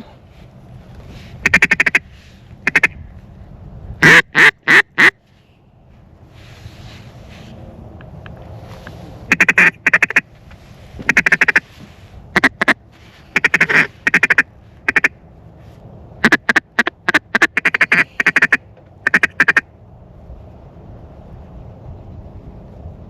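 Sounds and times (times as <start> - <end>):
duck call quacks: 1.4 - 2.0, 2.6 - 3.0, 4.0 - 5.2, 9.3 - 10.2, 11.1 - 11.6, 12.3 - 12.8, 13.4 - 15.1, 16.2 - 19.6.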